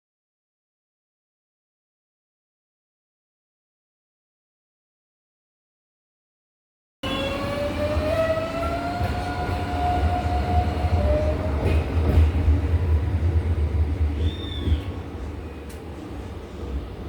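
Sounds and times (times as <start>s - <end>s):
electric train passing: 7.0s - 17.0s.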